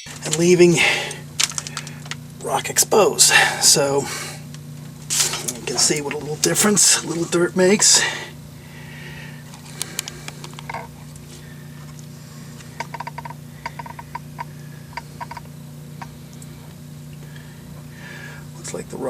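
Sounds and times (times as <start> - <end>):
steady low hum: 0.0 - 19.0
small tools clicking and tapping: 1.1 - 2.2, 9.8 - 10.9, 12.8 - 16.1.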